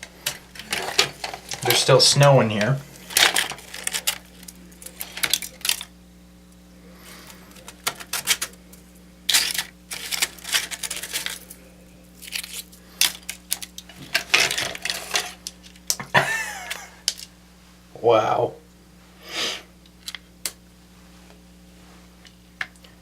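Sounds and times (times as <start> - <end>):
low hum: 0.0 - 23.0
plastic and metal parts rattling: 0.2 - 1.8, 3.1 - 5.9, 7.5 - 8.6, 9.3 - 11.5, 12.2 - 15.4.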